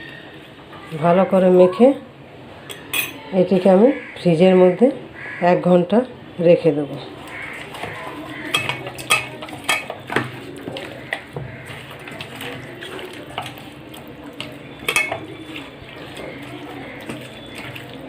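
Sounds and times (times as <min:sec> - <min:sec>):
utensils clinking and scraping bowl: 0:02.6 - 0:03.9, 0:07.2 - 0:18.0.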